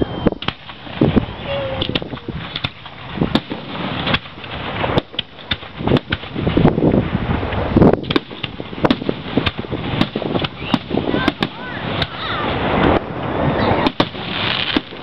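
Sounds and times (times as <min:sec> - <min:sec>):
firework whistles: 0:00.0 - 0:02.7, 0:09.4 - 0:15.0
firework bangs: 0:00.0 - 0:15.0
fireworks crackle and rumble: 0:00.0 - 0:15.0.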